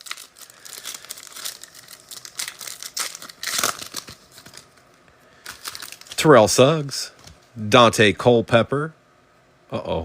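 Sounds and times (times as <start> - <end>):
plastic wrapping crinkling: 0.0 - 6.4.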